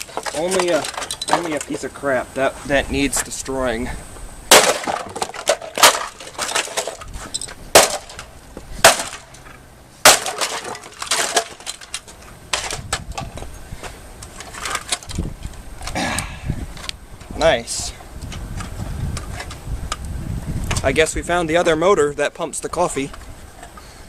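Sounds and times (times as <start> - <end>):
broken plastic parts rattling: 0.0 - 1.8, 4.5 - 13.5, 14.2 - 16.0
axe striking plastic: 4.5 - 7.0, 7.8 - 9.3, 10.0 - 11.7.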